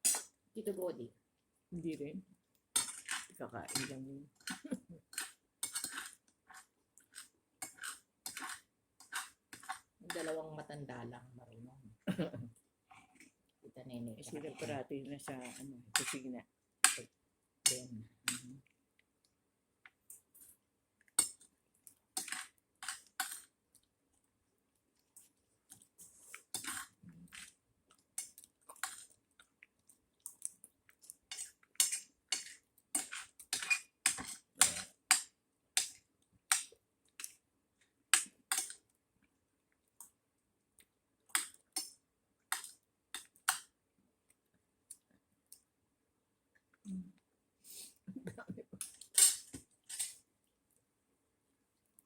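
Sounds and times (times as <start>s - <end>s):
cutlery clinking on plates: 48.8s - 50.2s.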